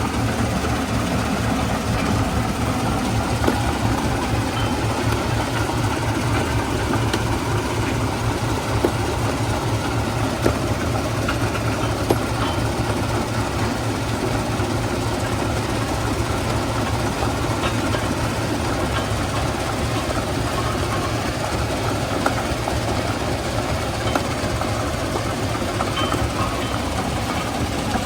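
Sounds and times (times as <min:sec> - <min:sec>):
stone crusher rumbling: 0:00.0 - 0:28.0
rock striking metal: 0:01.9 - 0:13.8.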